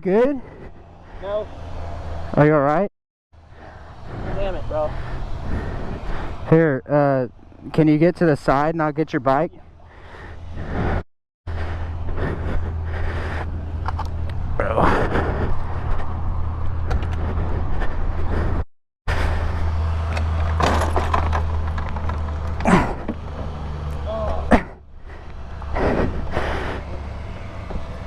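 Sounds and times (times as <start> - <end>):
vehicle engine droning: 0.0 - 28.0
knocks and clatter: 20.1 - 23.6.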